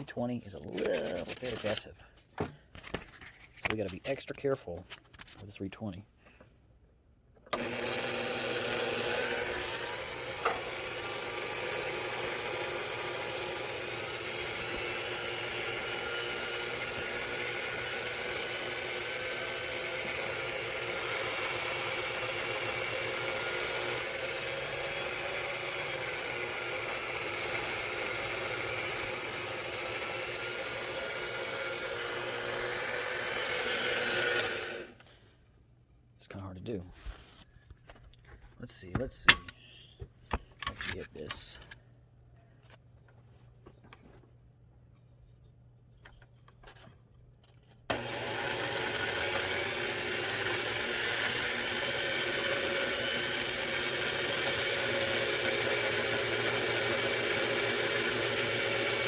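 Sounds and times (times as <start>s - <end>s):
small electric motor running: 7.6s - 35.0s, 47.9s - 59.0s.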